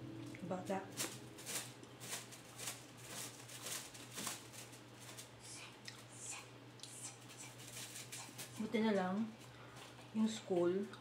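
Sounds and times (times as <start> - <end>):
plastic bottle crinkle: 0.9 - 5.4
person chewing food: 5.7 - 7.2.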